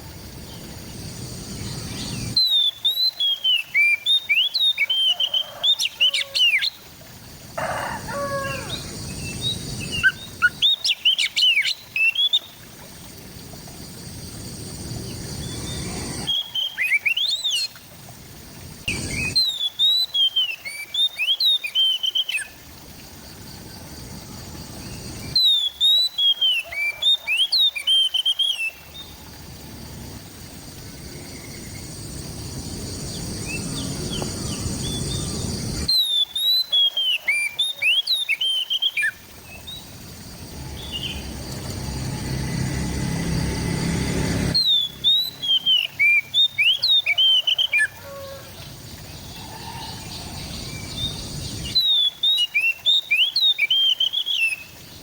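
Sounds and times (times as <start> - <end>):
bird singing whistled notes: 1.6 - 6.7, 15.4 - 17.7, 18.9 - 22.5, 25.3 - 28.8, 33.1 - 39.8, 44.5 - 47.8, 49.4 - 54.7.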